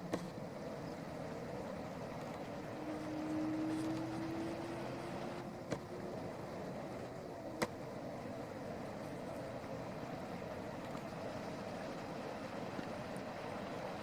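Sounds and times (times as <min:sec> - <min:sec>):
distant traffic hum: 0:00.0 - 0:14.0
engine drone: 0:00.0 - 0:14.0.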